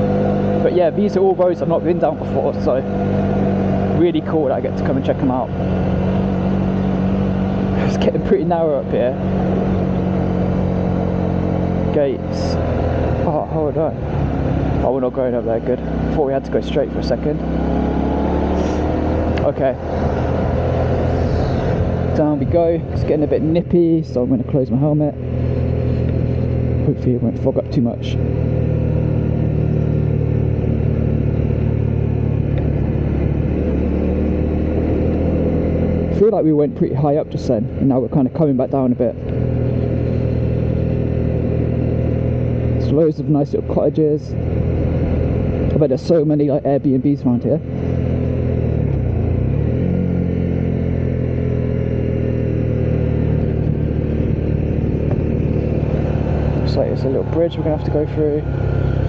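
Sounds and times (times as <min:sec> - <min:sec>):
steady rushing noise: 0:00.0 - 0:38.2, 0:50.8 - 0:59.0
motorcycle engine running: 0:00.0 - 0:59.0
road and wind noise: 0:00.0 - 0:59.0.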